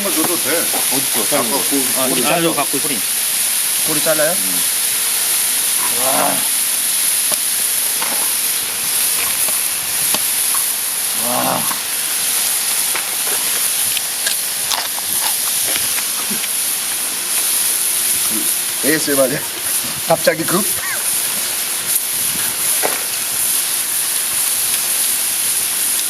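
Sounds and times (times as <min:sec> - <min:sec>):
pork belly sizzling: 0:00.0 - 0:26.0
grunt-like vocal sounds: 0:05.8 - 0:06.5, 0:11.1 - 0:11.9.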